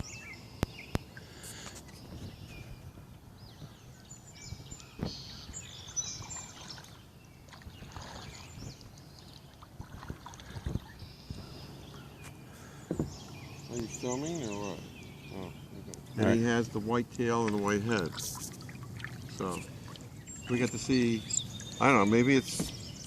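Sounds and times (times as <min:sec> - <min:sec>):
quiet water movement: 0:00.0 - 0:23.0
small birds chirping: 0:00.0 - 0:23.0
sharp knocks on hull: 0:12.8 - 0:13.2, 0:22.5 - 0:22.8.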